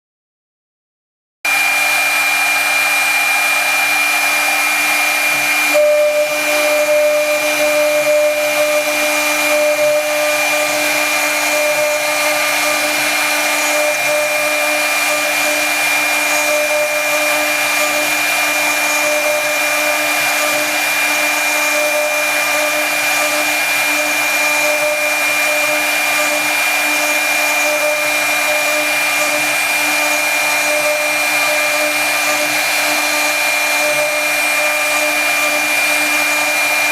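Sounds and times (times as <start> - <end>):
router spindle high whine: 1.5 - 36.9
milling hiss cutting wood: 1.6 - 36.9
lower tone: 5.5 - 15.4.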